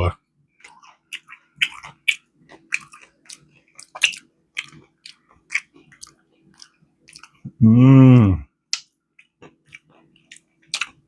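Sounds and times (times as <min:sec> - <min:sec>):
chewing crunchy food: 0:00.5 - 0:07.6, 0:08.7 - 0:11.0
person humming mm: 0:07.5 - 0:08.4
wet mouth clicks: 0:08.7 - 0:08.9.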